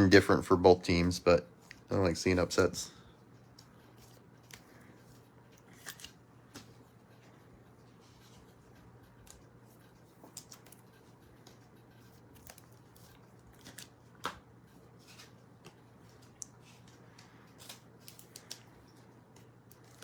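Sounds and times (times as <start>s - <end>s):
low steady hum: 0.0s - 20.0s
trading cards being handled: 3.4s - 7.0s, 7.9s - 20.0s.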